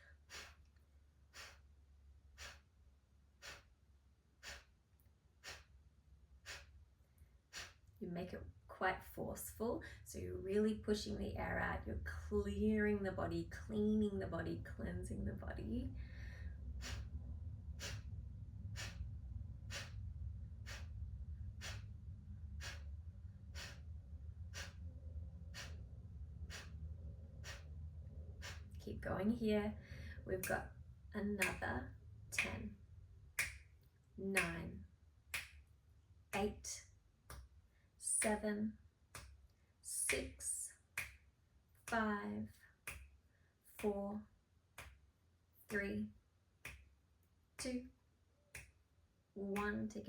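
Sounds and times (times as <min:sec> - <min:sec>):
faint low hum: 0:00.0 - 0:40.9
forceful nasal exhales: 0:00.2 - 0:00.6, 0:01.3 - 0:01.7, 0:02.4 - 0:02.7, 0:03.4 - 0:03.7, 0:04.4 - 0:04.7, 0:05.4 - 0:05.7, 0:06.4 - 0:06.8, 0:07.5 - 0:07.8, 0:16.0 - 0:17.1, 0:17.8 - 0:18.1, 0:18.7 - 0:19.0, 0:19.7 - 0:20.0, 0:20.6 - 0:21.9, 0:22.6 - 0:22.9, 0:23.5 - 0:23.9, 0:24.5 - 0:24.8, 0:25.5 - 0:25.9, 0:26.5 - 0:26.8, 0:27.4 - 0:27.7, 0:28.4 - 0:28.7.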